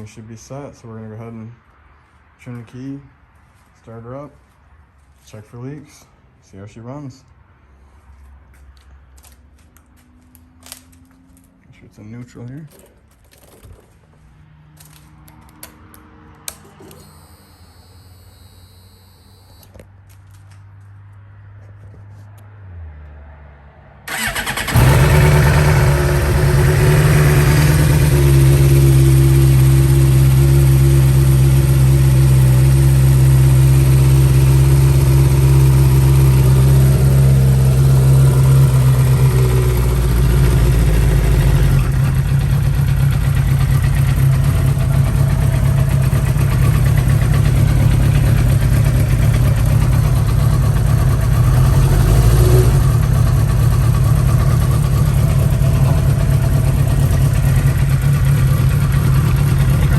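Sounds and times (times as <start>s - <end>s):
motorcycle engine idling: 24.1s - 59.9s.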